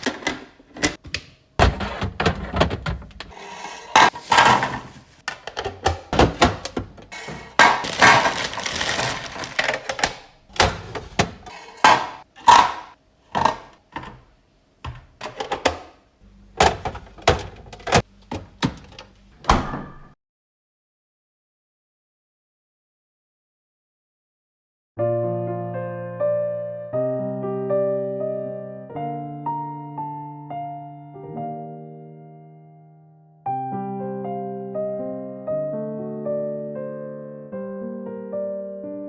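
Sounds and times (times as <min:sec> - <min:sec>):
items knocking and clicking: 0:00.0 - 0:16.0, 0:16.6 - 0:19.2
packaging rustling and crinkling: 0:07.1 - 0:12.2.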